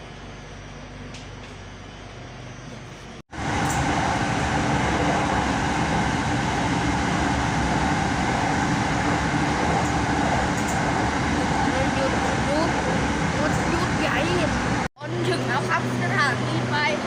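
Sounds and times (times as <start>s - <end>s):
faint train whine: 0.0s - 17.0s
train wheels rumbling on rail: 3.3s - 14.9s.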